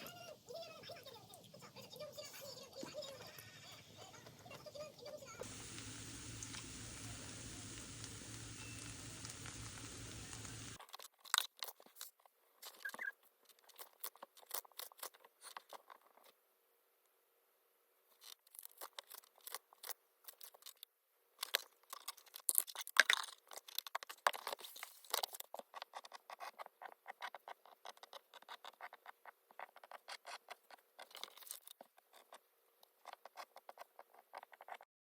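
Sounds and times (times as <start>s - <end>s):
light clicks and scratches: 0.9s - 16.4s, 18.1s - 34.9s.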